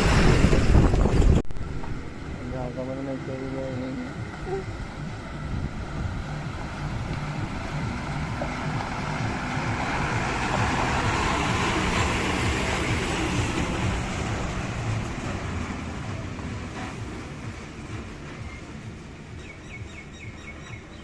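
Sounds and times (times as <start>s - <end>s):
rushing noise: 0.0s - 19.6s
diesel engine rumbling: 0.0s - 21.0s.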